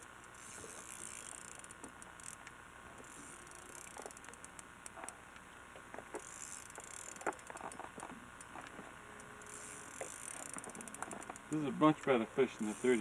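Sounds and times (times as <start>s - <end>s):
rapid high ticking: 6.2s - 13.0s.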